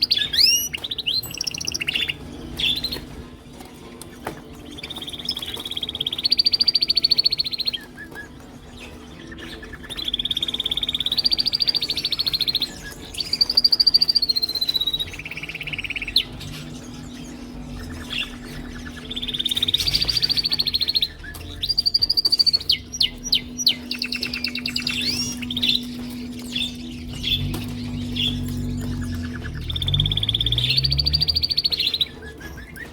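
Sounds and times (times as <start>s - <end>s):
canaries singing trills: 0.0s - 32.9s
steady low hum: 15.4s - 31.8s.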